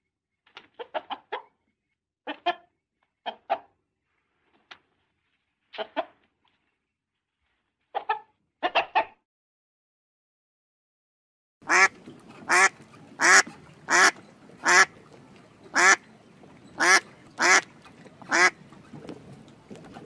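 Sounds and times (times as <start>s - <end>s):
duck quacking: 11.6s - 14.9s, 15.7s - 16.0s, 16.8s - 17.7s, 18.3s - 18.6s.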